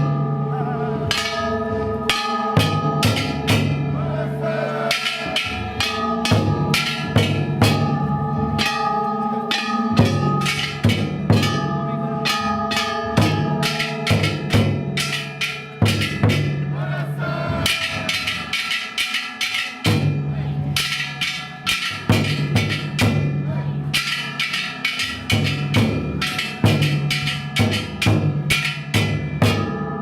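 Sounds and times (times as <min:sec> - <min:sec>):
hand-held bronze gongs ringing: 0:00.0 - 0:16.8, 0:17.5 - 0:30.0
large taiko drum: 0:00.0 - 0:30.0.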